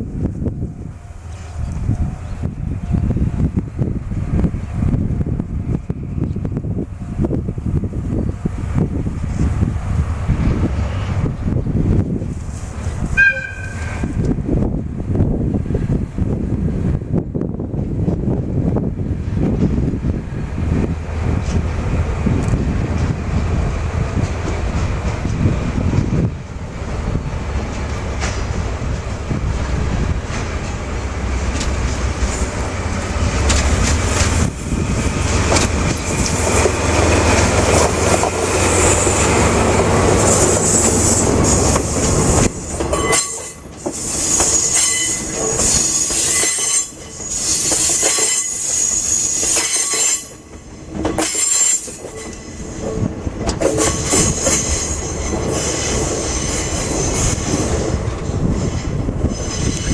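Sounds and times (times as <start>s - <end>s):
locomotive engine drone: 0.0s - 59.9s
wheels clicking over rail joints: 30.0s - 48.7s, 49.4s - 59.9s
wheel squeal: 40.1s - 50.5s, 51.1s - 52.8s, 53.7s - 57.8s, 58.5s - 59.9s.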